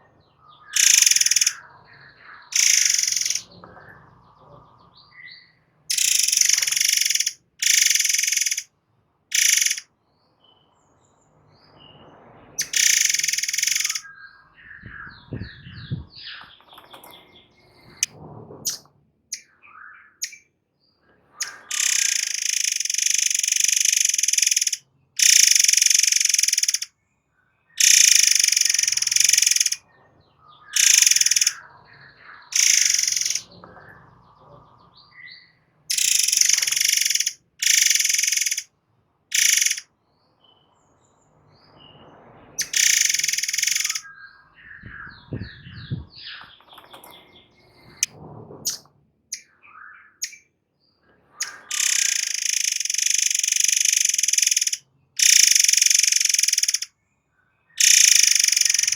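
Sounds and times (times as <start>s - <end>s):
soft bird chirps: 0.0s - 8.7s, 9.3s - 18.1s, 18.7s - 38.7s, 39.3s - 48.1s, 48.7s - 58.9s
bird harsh hissing screeches: 0.8s - 1.6s, 2.6s - 3.5s, 5.9s - 8.7s, 9.3s - 9.8s, 12.6s - 14.0s, 21.4s - 26.9s, 27.8s - 29.8s, 30.8s - 31.6s, 32.6s - 33.5s, 35.9s - 38.6s, 39.3s - 39.8s, 42.6s - 44.0s, 51.4s - 56.9s.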